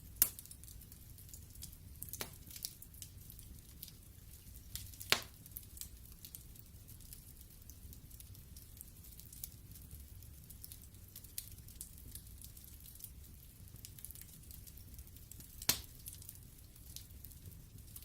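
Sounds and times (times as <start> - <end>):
wood fire crackling: 0.0 - 18.0
loud pop from fire: 0.2 - 0.5, 2.1 - 2.6, 4.8 - 5.4, 15.6 - 16.0.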